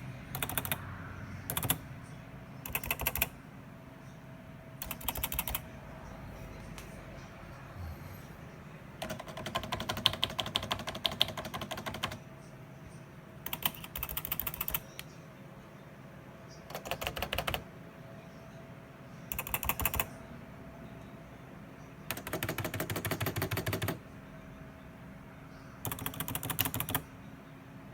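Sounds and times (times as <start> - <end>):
fast keyboard typing: 0.3 - 1.8, 2.6 - 3.4, 4.8 - 5.7, 9.0 - 12.2, 13.5 - 15.1, 16.7 - 17.6, 19.3 - 20.1, 22.1 - 24.0, 25.8 - 27.1.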